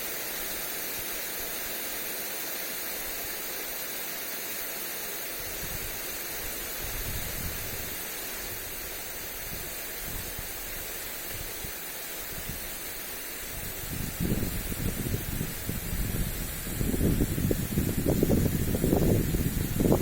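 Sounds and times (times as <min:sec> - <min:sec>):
sprinkler spraying water: 0:00.0 - 0:20.0
wind on microphone: 0:05.4 - 0:20.0.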